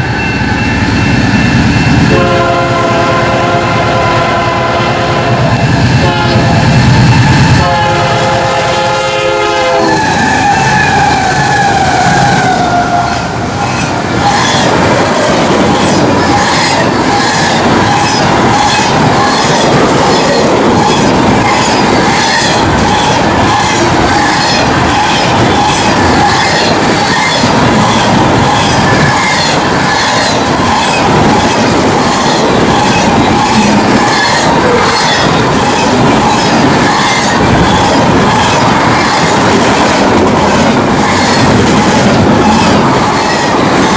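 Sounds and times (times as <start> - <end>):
train horn chord: 2.1 - 10.2.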